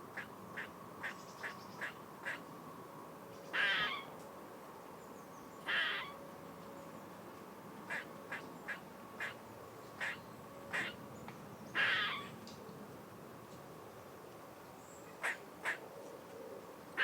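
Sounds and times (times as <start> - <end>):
short sharp animal calls: 5.7 - 6.1, 10.0 - 11.0
long harsh animal calls: 5.7 - 6.2, 10.0 - 11.0, 11.8 - 12.3.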